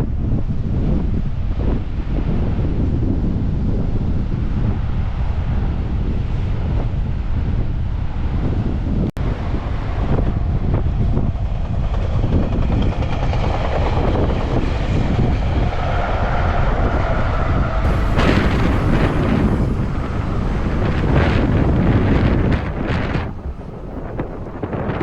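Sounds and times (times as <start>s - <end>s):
wind buffeting microphone: 0.0s - 25.0s
surf: 17.8s - 25.0s.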